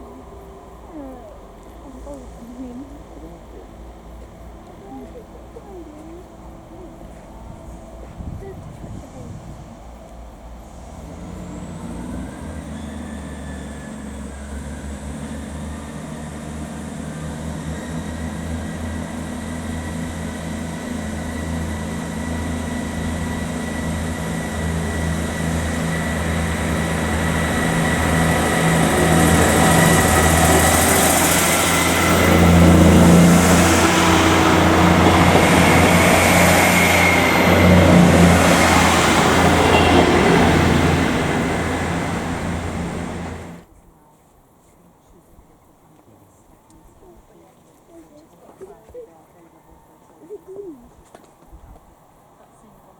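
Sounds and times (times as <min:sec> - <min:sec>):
diesel train engine running: 0:00.0 - 0:43.7.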